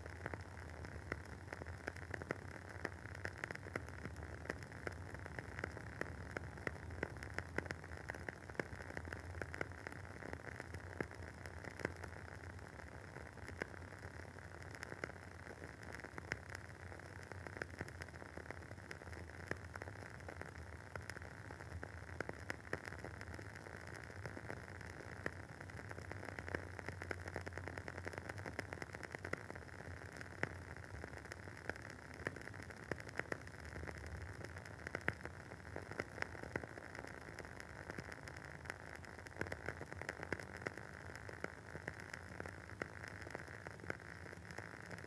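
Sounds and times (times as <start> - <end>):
faint steady hiss: 0.0 - 45.0
wooden wick candle crackling: 9.4 - 45.0.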